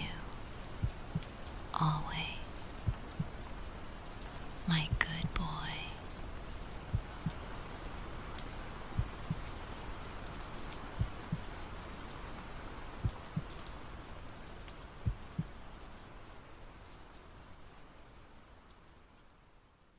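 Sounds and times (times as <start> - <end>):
soft steady rain: 0.0 - 19.9
heartbeat: 0.8 - 1.4, 2.8 - 3.4, 4.7 - 5.5, 6.9 - 7.5, 8.9 - 9.5, 10.9 - 11.5, 13.0 - 13.6, 15.0 - 15.6.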